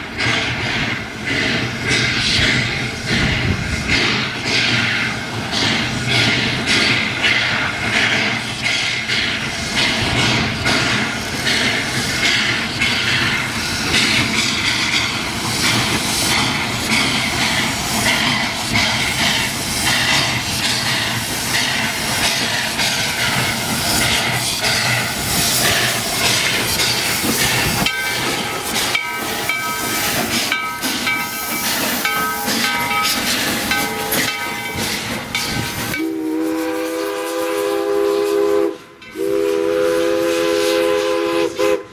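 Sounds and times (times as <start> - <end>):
steam hissing: 0.0 - 41.9
train clattering on track: 0.0 - 41.9.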